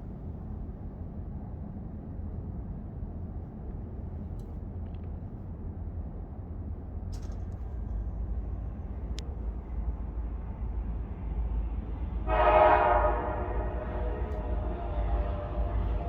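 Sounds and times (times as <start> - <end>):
freight train rumble: 0.0 - 16.0
locomotive air horn chord: 12.2 - 16.0.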